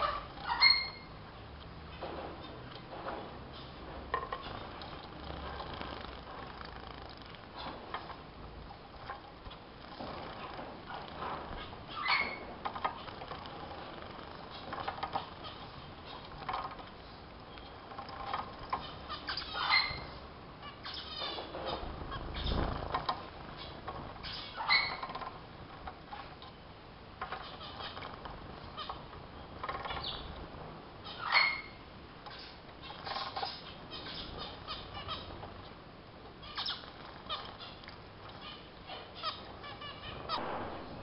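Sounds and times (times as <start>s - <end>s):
finches chirping: 0.0s - 1.2s, 8.8s - 16.8s, 17.4s - 25.4s, 27.2s - 35.8s, 36.4s - 40.4s
wing flutters: 4.4s - 8.2s, 8.8s - 17.2s, 21.0s - 26.4s.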